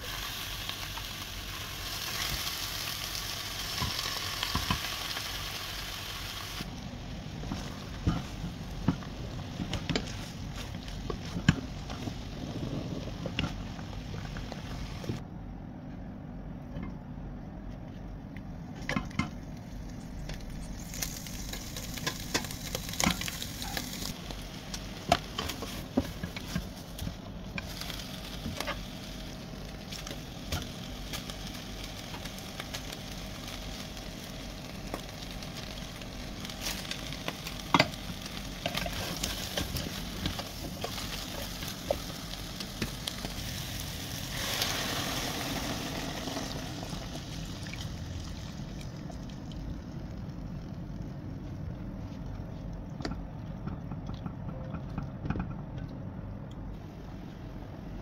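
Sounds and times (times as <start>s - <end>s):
food sizzling in a pan: 0.0s - 6.7s, 20.5s - 48.8s.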